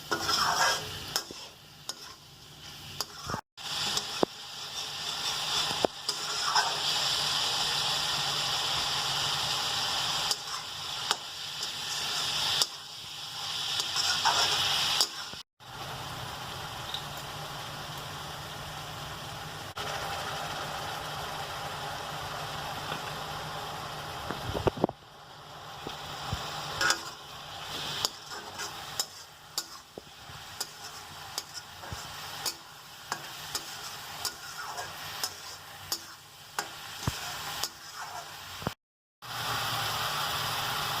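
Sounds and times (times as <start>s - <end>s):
utensil scraping a pan: 0.0s - 6.8s, 13.8s - 15.4s, 26.8s - 38.4s
food sizzling in a pan: 0.0s - 41.0s.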